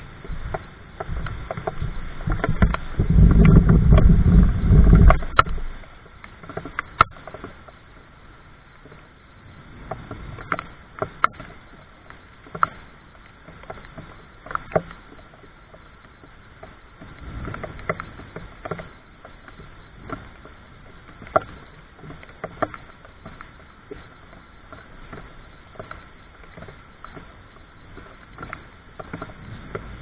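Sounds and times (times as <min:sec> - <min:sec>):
low rumble: 0:00.0 - 0:07.2, 0:16.4 - 0:21.3
raindrops tapping: 0:00.2 - 0:07.8.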